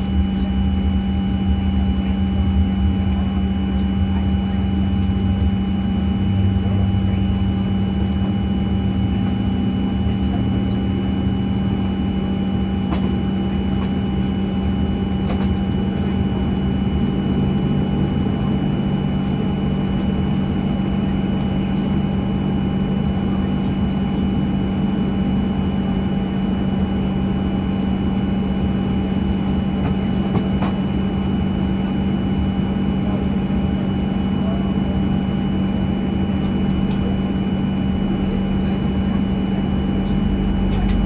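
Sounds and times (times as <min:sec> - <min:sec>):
airplane cabin drone: 0:00.0 - 0:41.0.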